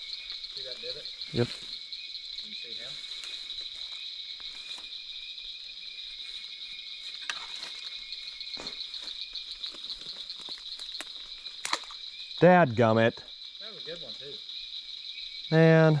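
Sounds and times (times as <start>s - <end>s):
night insects trilling: 0.0s - 16.0s
rustles: 6.2s - 12.0s.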